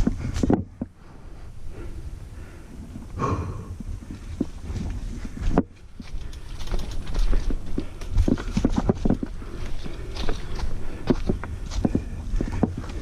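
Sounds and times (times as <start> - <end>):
wind rumble on microphone: 0.0 - 13.0
bike frame and chain rattling: 5.1 - 12.9.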